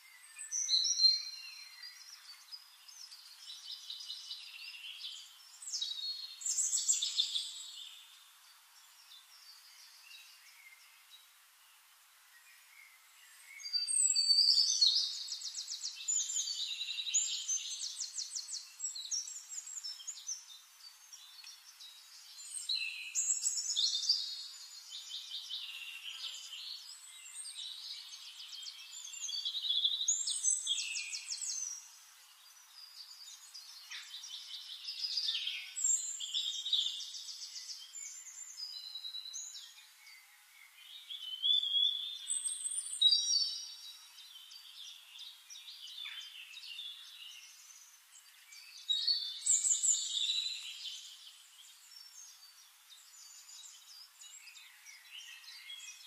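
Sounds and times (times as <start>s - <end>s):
songbird trilling and whistling: 13.6s - 20.2s.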